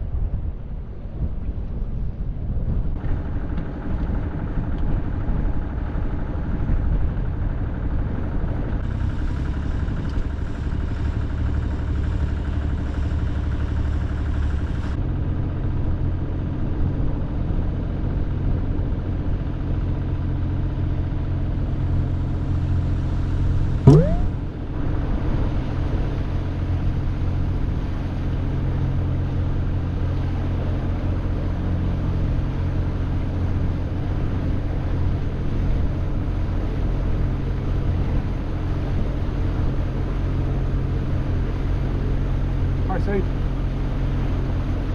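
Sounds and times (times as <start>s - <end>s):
boat engine running: 23.9s - 24.5s.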